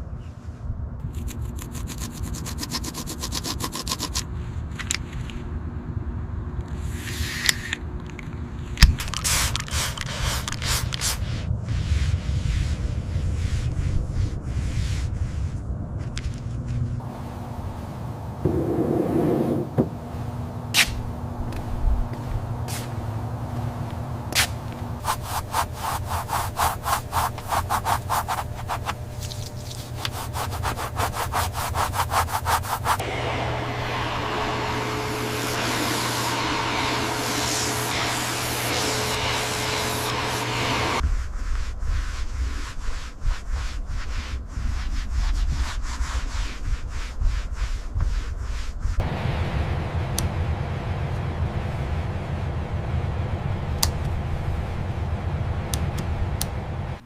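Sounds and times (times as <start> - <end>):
steady low hum: 4.3 - 45.2, 46.6 - 57.0
hand rubbing strokes on surface: 10.6 - 16.1, 18.5 - 20.0, 21.6 - 33.0, 34.9 - 49.0.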